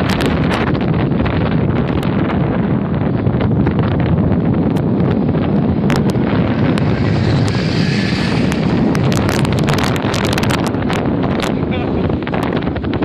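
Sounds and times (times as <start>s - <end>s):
wind buffeting microphone: 0.0s - 13.0s
sharp clicks and rattles: 4.7s - 13.0s.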